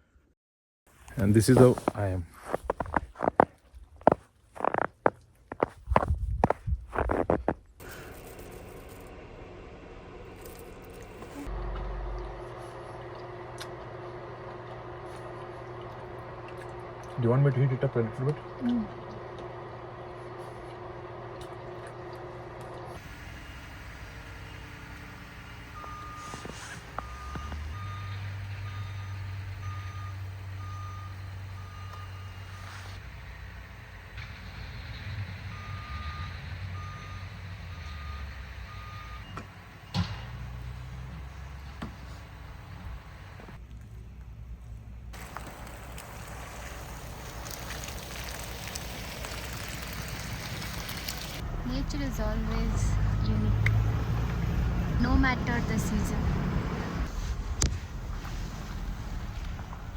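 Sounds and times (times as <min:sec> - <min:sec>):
vehicle road noise: 0:01.1 - 0:59.9
vehicle warning beeper: 0:23.4 - 0:33.0, 0:35.5 - 0:40.2
engine idling: 0:41.2 - 0:53.8.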